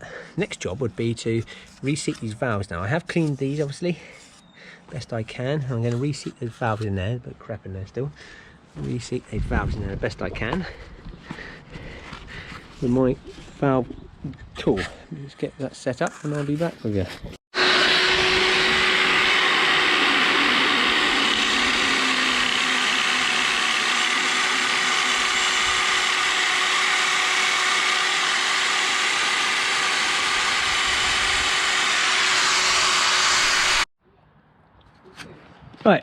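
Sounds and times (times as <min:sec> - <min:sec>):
power tool running: 0:17.5 - 0:33.9.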